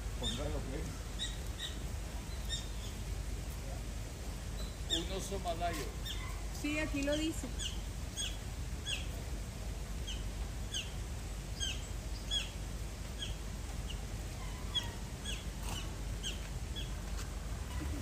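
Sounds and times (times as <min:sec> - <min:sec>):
small bird chirping: 0:00.2 - 0:03.0, 0:04.5 - 0:09.2, 0:10.0 - 0:12.6, 0:13.2 - 0:17.0.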